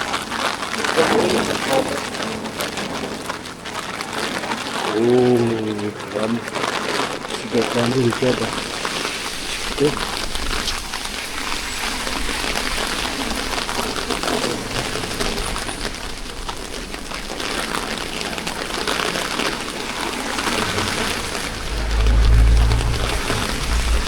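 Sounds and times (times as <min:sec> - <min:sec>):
steady rain falling: 0:00.0 - 0:24.0
low rumble: 0:19.6 - 0:24.0.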